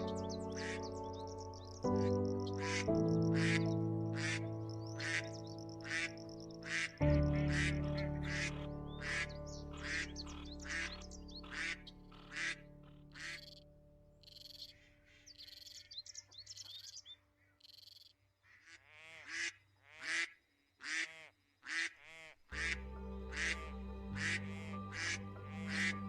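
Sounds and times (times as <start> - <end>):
duck quacking: 2.6 - 13.6, 18.4 - 26.0
duckling peeps: 5.0 - 13.6, 14.2 - 26.0
low steady hum: 22.6 - 26.0.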